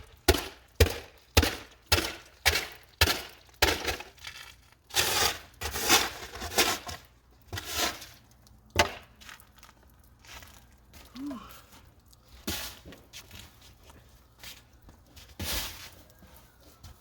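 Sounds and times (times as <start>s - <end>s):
shovel scraping snow: 3.8s - 8.2s, 12.4s - 12.9s, 15.3s - 16.0s
snow shovel chopping snow: 4.9s - 8.1s, 12.5s - 12.9s, 15.4s - 15.9s.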